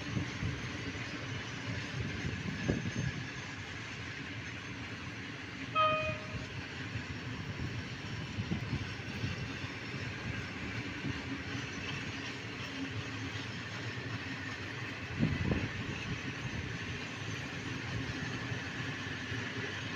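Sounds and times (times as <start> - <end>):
freight train wheels rumbling: 0.0 - 19.9
short high tone: 5.8 - 6.4.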